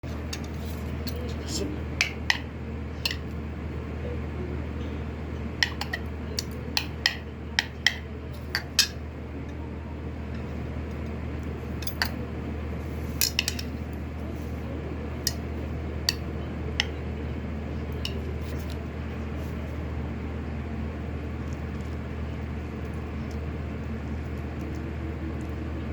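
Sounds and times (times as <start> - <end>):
utensils tapping against bowl: 0.0 - 1.4, 2.0 - 3.4, 5.6 - 9.6, 11.7 - 12.2, 13.0 - 13.9, 15.2 - 17.1, 17.9 - 18.8
steady low hum: 0.0 - 25.9.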